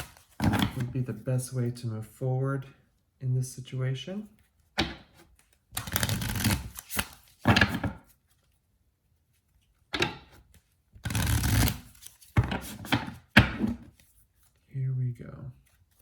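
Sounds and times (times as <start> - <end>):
cards being shuffled: 0.0 - 1.0, 4.3 - 8.6, 10.3 - 14.7.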